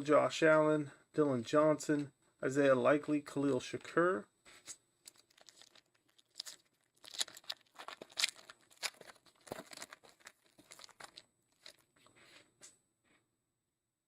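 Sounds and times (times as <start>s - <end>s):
cards being handled: 4.5s - 11.9s
wrapper tearing and crinkling: 5.1s - 11.9s.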